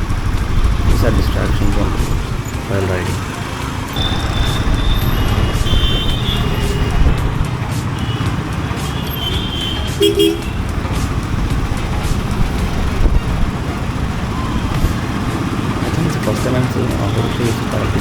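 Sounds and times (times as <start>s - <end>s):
motorcycle engine running: 0.0s - 18.0s
road noise: 0.0s - 18.0s
vehicle horn beeps: 3.9s - 7.3s, 7.9s - 10.6s.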